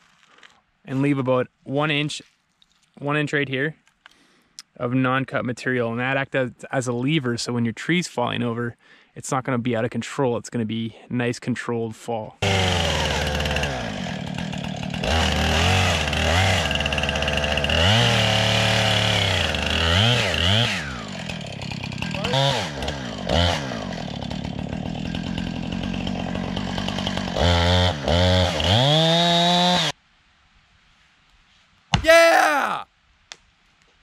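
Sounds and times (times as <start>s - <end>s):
chainsaw revving: 12.4s - 29.9s.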